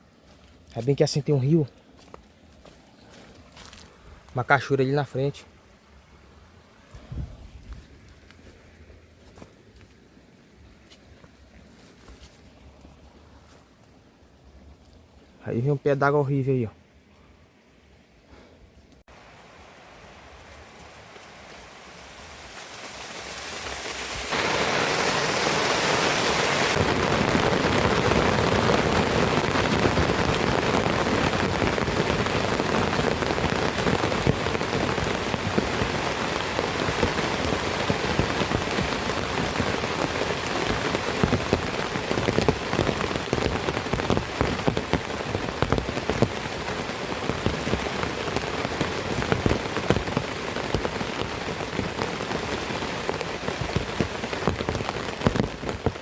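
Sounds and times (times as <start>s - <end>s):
raindrops hitting close by: 19.0s - 56.0s
heavy rain downpour: 19.1s - 56.0s.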